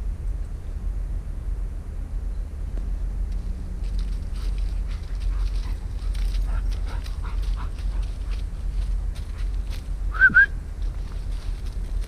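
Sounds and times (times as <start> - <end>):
wind rumble on microphone: 0.0 - 12.0
brush crackling underfoot: 2.7 - 12.0.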